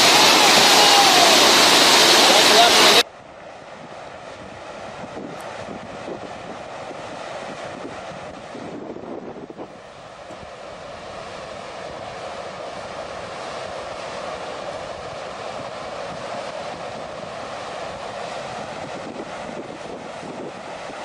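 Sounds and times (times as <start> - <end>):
floodwater rushing: 0.0 - 3.0.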